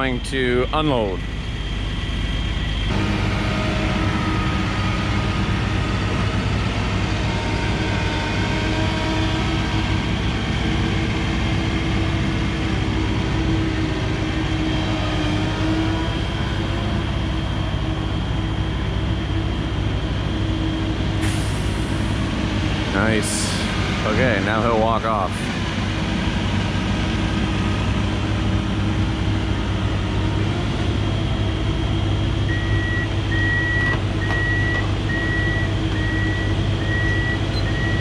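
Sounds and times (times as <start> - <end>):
excavator diesel engine running: 0.0 - 38.0.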